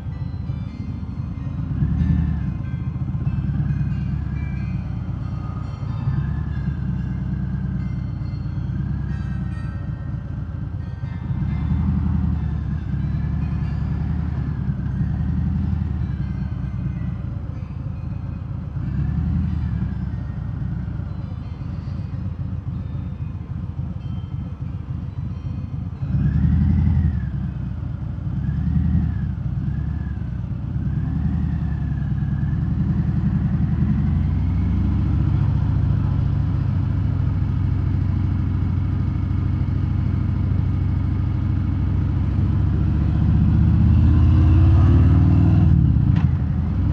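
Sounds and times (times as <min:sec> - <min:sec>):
motorcycle engine revving: 0:42.2 - 0:46.9.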